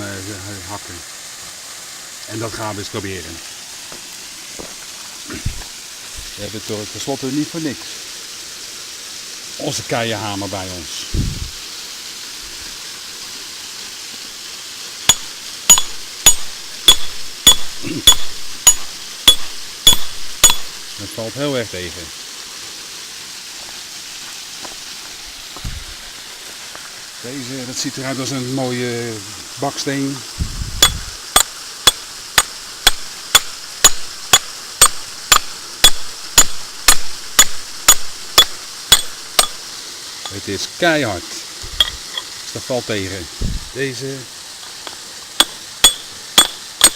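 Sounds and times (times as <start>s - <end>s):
steady hiss: 0.0s - 46.9s
rock hammer clinking on rock: 15.1s - 20.9s, 30.8s - 39.6s, 44.8s - 46.9s.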